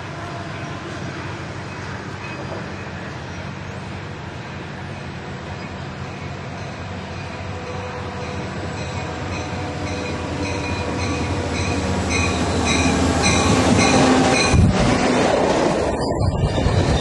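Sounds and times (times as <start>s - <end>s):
diesel locomotive passing: 0.0s - 17.0s
railcars rolling past: 0.0s - 17.0s
locomotive bell ringing: 6.4s - 14.7s.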